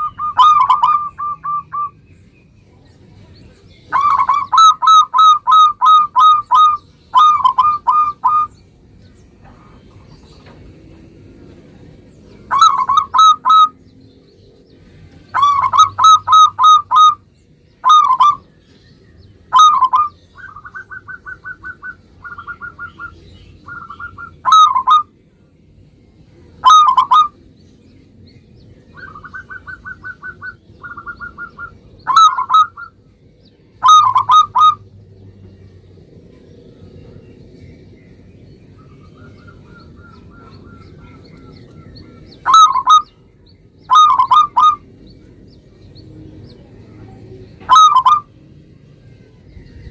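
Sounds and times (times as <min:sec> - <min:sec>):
dove cooing: 0:00.0 - 0:02.0, 0:03.9 - 0:08.5, 0:12.5 - 0:13.8, 0:15.3 - 0:17.2, 0:17.8 - 0:18.5, 0:19.5 - 0:25.1, 0:26.6 - 0:27.4, 0:28.9 - 0:33.0, 0:33.8 - 0:34.8, 0:38.9 - 0:43.2, 0:43.9 - 0:45.0, 0:47.6 - 0:48.3.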